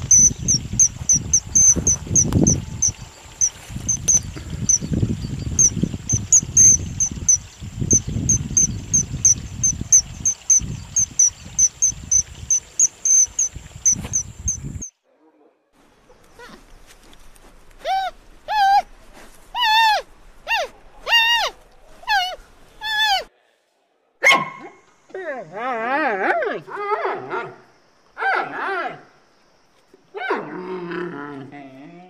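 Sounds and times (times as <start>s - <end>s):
wind noise on microphone: 0.0s - 14.9s
short high chirps: 0.1s - 14.9s.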